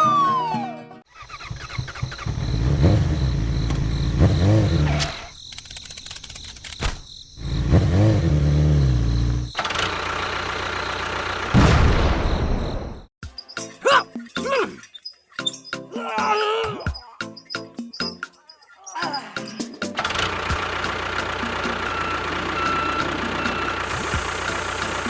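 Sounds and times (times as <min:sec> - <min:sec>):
engine revving: 0:01.1 - 0:05.3, 0:07.4 - 0:11.6, 0:20.0 - 0:25.0
sudden loud burst: 0:11.5 - 0:13.1.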